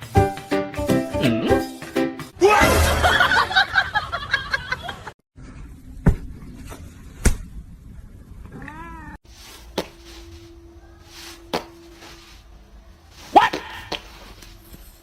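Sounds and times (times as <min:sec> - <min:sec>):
cat meowing: 0:08.5 - 0:09.2.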